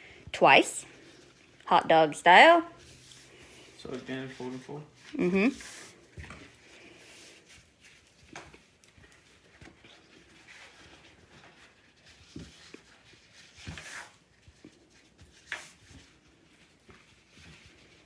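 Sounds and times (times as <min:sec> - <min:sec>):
paper rustling: 0:02.7 - 0:18.0.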